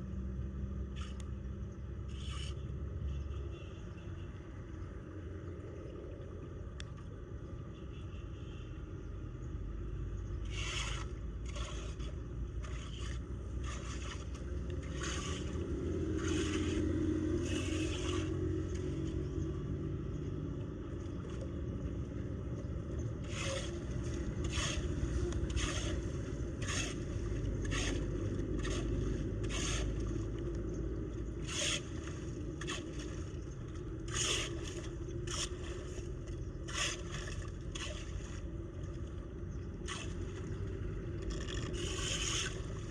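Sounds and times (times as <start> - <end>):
floodwater draining: 10.4 - 42.9
tool scraping debris from drain: 10.5 - 18.4, 23.2 - 30.2, 34.0 - 38.2, 41.2 - 42.9.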